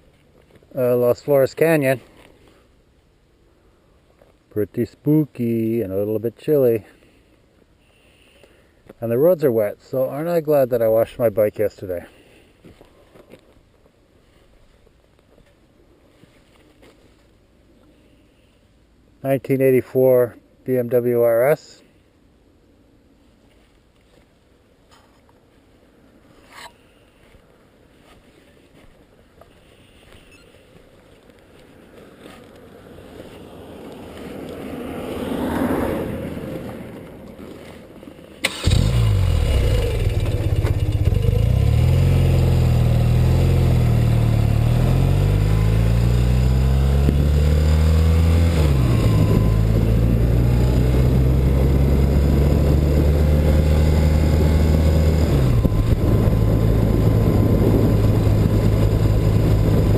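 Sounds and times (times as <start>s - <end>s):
motorcycle engine revving: 38.4s - 59.9s.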